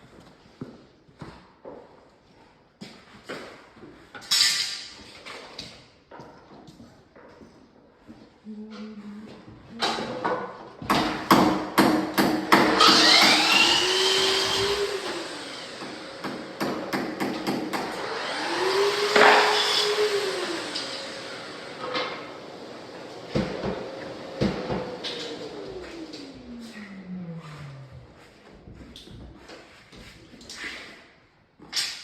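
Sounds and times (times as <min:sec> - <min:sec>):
small motor spinning: 0:12.8 - 0:15.9.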